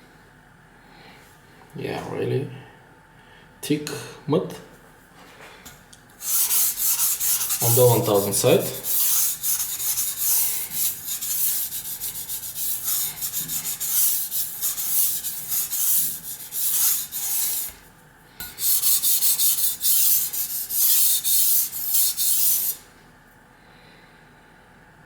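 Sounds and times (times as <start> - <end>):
knife stroked on wet whetstone: 6.2 - 17.8, 18.6 - 22.8.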